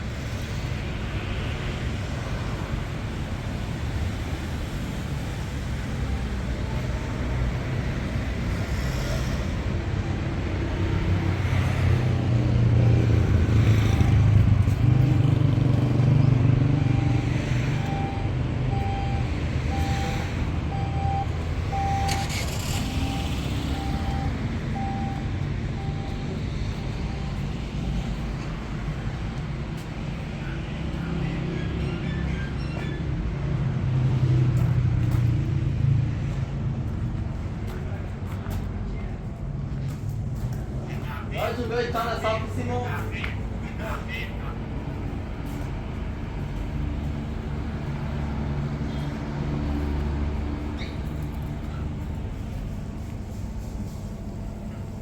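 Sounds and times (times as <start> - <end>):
street traffic rumble: 0.0 - 55.0
vehicle passing close: 7.2 - 29.4
short beeps: 16.8 - 22.4, 23.0 - 27.6.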